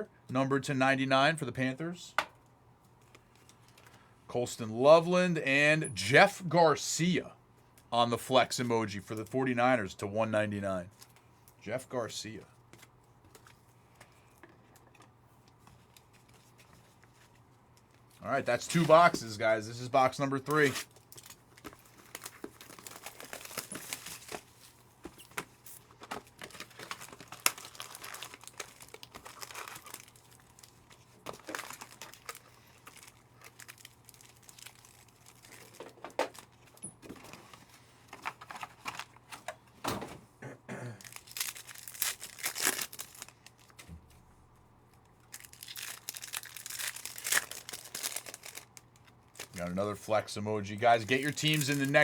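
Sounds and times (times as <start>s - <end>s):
plastic wrapping crinkling: 20.4s - 39.3s, 41.0s - 44.1s, 44.9s - 49.7s, 50.8s - 52.0s.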